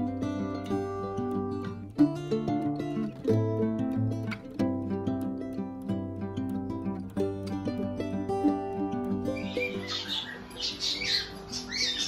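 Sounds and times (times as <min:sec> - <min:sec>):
plucked string music: 0:00.0 - 0:12.0
caged birds chirping and squawking: 0:09.3 - 0:12.0.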